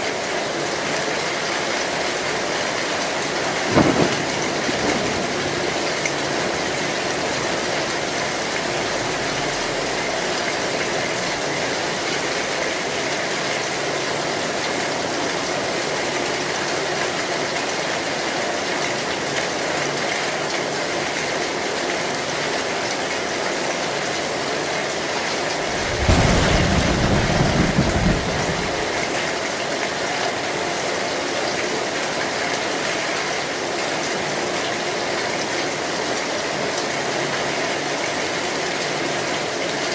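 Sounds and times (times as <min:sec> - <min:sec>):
heavy rain on a metal roof: 0:00.0 - 0:39.9
thunder rumble: 0:03.1 - 0:12.6, 0:25.5 - 0:29.5.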